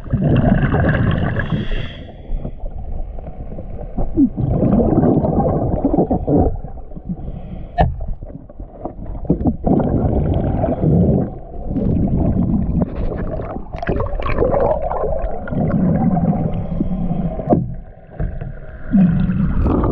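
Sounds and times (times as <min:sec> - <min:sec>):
water gurgling and churning: 0:00.0 - 0:19.9.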